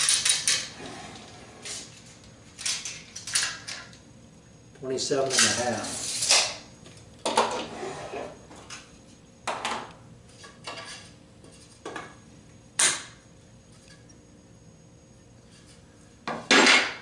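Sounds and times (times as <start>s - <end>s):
metal parts clacking and scraping: 0.0s - 0.7s, 5.3s - 6.6s.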